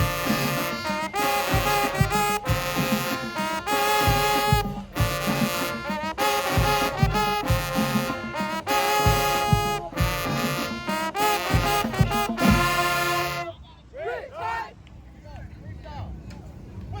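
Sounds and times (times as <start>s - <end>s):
brass horns holding chords: 0.0s - 13.7s
bass drum hits: 11.5s - 13.1s.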